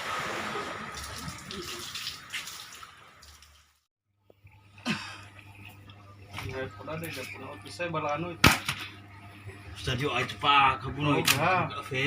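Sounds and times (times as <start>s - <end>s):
water splashing and sloshing: 0.0s - 9.0s.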